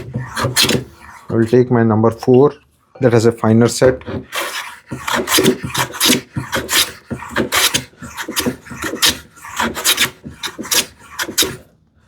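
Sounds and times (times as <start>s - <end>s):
hand plane swishing on wood: 0.0s - 1.6s, 3.9s - 11.6s.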